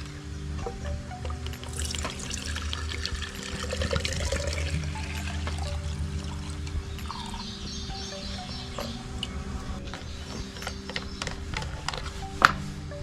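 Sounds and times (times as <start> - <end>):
fuel pouring into a container: 1.6 - 7.4.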